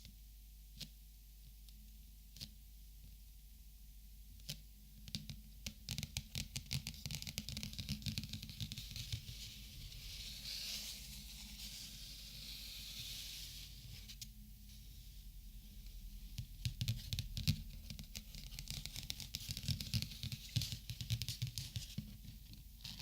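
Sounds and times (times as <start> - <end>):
plastic markers clicking and tapping: 16.6 - 22.0.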